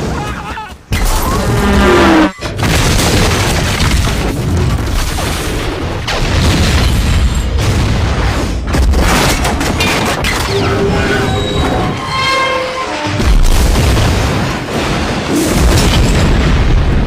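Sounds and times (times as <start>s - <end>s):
crashing wreckage: 13.1s - 17.0s
explosion booms: 13.2s - 17.0s.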